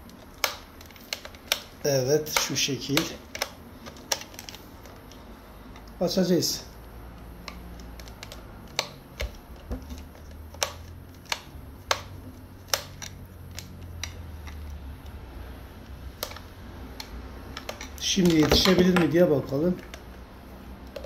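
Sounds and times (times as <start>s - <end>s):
screwdriver clicking on plastic: 0.0s - 5.2s, 7.2s - 15.2s, 15.8s - 19.2s.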